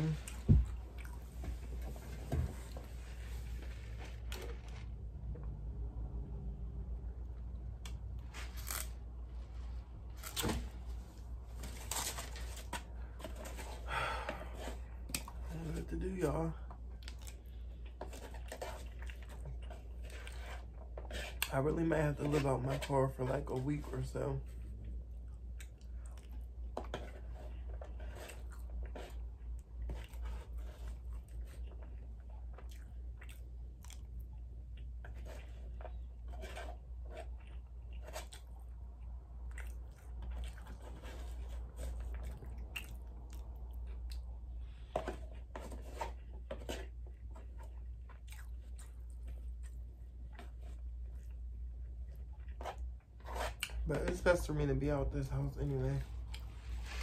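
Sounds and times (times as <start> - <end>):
chewing and mouth smacking: 16.8 - 20.4, 24.8 - 26.8, 30.9 - 36.2, 37.2 - 44.5, 46.8 - 53.8
plastic fork scraping foam box: 36.2 - 37.3.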